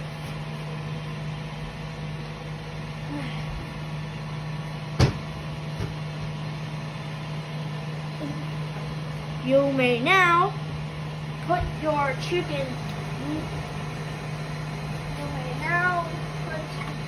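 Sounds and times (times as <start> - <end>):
kitchen appliance hum: 0.0 - 17.0.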